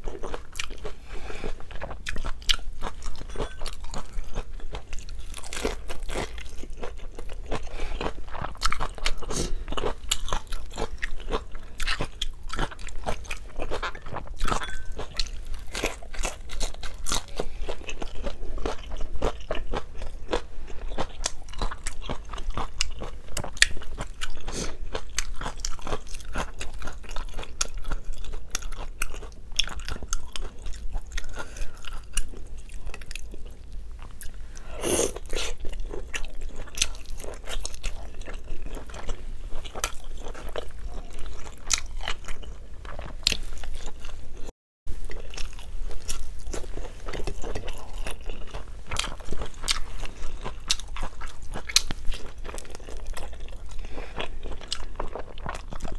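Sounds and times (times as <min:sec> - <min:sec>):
crunching fried spring roll: 0:01.8 - 0:33.6.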